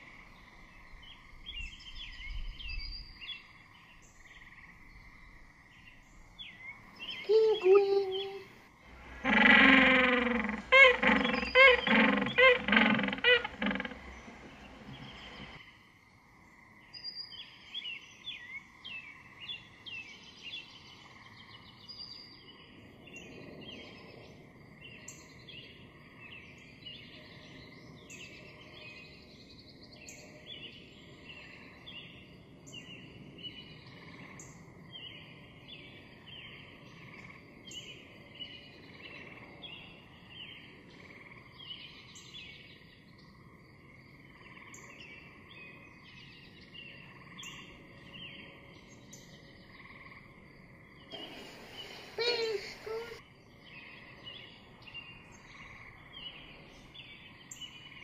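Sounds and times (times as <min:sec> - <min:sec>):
small birds chirping: 0:00.0 - 0:15.6, 0:50.9 - 0:58.0
background nature hiss: 0:00.0 - 0:58.0.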